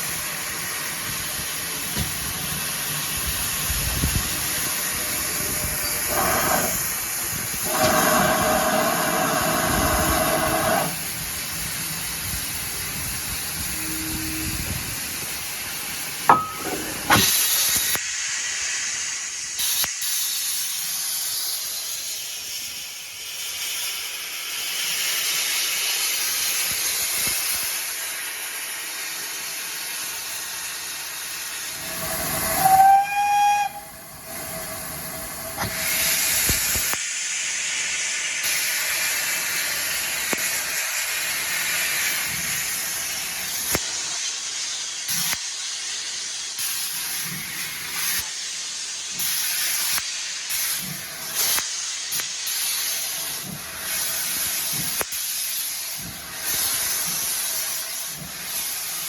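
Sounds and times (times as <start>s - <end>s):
steam hissing: 0.0s - 59.0s
steam whistle blast: 4.7s - 6.9s, 7.6s - 11.0s, 13.6s - 14.9s, 31.8s - 36.0s.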